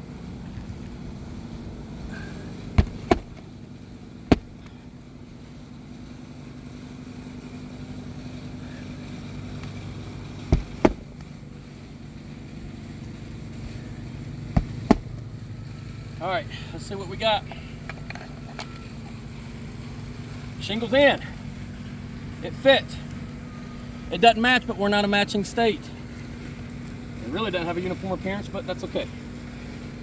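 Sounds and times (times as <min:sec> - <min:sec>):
steady low hum: 0:00.0 - 0:16.6
hammer striking shingle roof: 0:02.8 - 0:03.5, 0:04.3 - 0:04.7, 0:10.4 - 0:11.3, 0:14.6 - 0:15.2.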